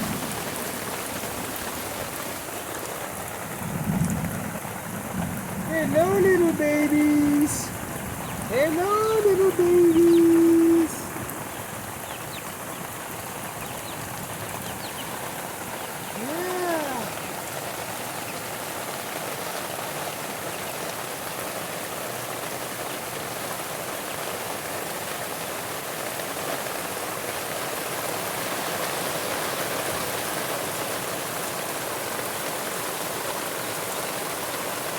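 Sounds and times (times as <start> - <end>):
heavy rain falling: 0.0 - 34.9
rising and falling call: 8.5 - 11.2.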